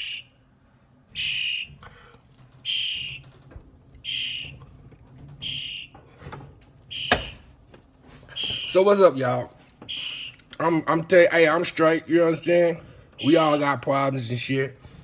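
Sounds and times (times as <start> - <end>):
bird screaming: 0.0 - 0.3, 1.2 - 1.8, 9.9 - 10.4.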